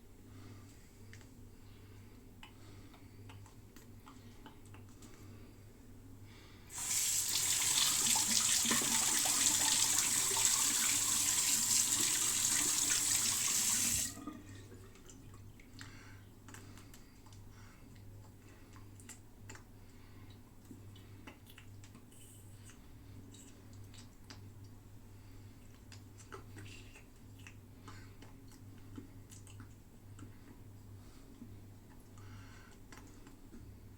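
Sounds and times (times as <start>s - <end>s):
tap running into a sink: 6.8s - 14.4s.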